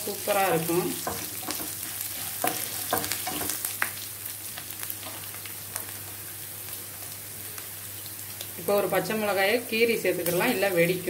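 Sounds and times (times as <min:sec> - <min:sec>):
spices sizzling in hot oil: 0:00.0 - 0:11.0
wooden spatula knocking on pan: 0:01.0 - 0:01.8, 0:02.4 - 0:03.6.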